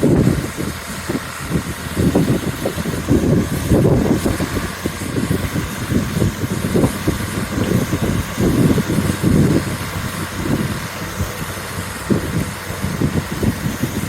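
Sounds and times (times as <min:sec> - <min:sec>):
engine running: 0:00.0 - 0:14.0
wind buffeting microphone: 0:00.0 - 0:14.0.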